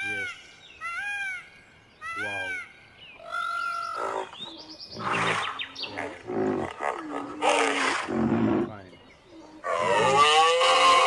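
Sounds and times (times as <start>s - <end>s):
animal calls: 0.0s - 11.0s.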